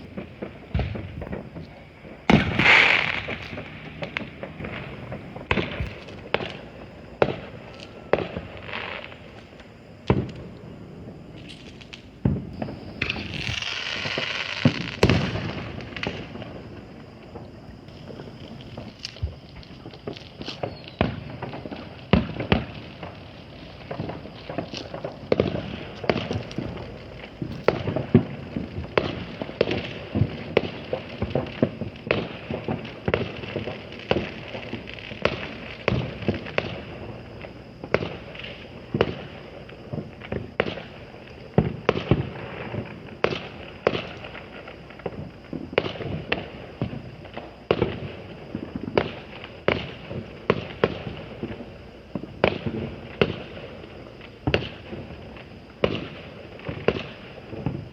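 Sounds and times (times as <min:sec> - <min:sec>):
fireworks bangs and pops: 0:00.0 - 0:57.9.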